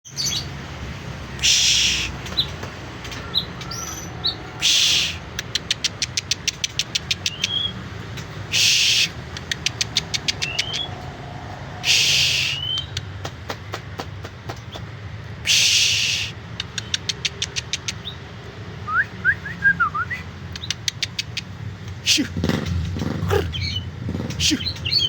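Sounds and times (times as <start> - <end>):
bird calling: 1.4 - 7.8, 8.5 - 11.0, 18.9 - 25.0.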